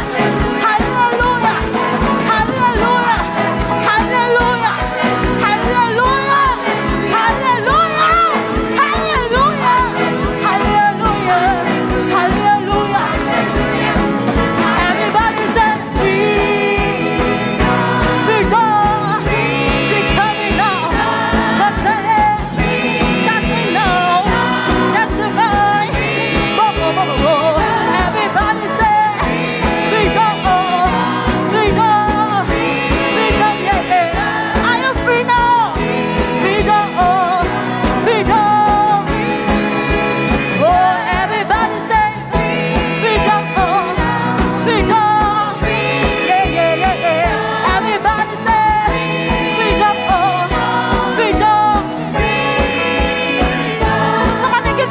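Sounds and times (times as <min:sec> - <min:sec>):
full band playing: 0:00.0 - 0:54.9
gospel choir singing: 0:00.0 - 0:54.9.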